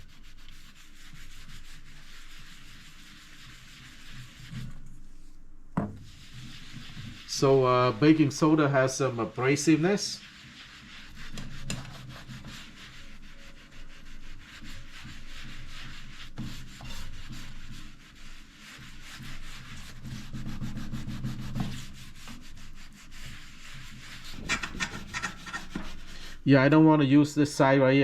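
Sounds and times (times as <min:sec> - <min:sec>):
sponge scrubbing gritty paste: 0:00.0 - 0:26.7.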